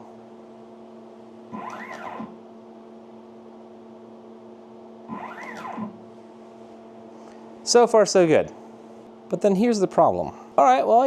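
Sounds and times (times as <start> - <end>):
steady electrical hum: 0.0 - 11.0
motor whine: 1.3 - 3.2, 4.8 - 7.4.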